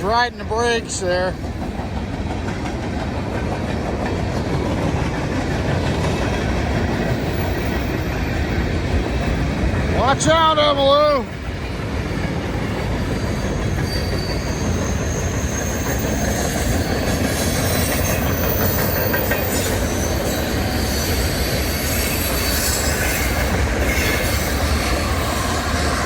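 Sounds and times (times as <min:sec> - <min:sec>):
steel wheels clicking over rail joints: 0:00.0 - 0:26.0
high wheel squeal: 0:12.2 - 0:26.0.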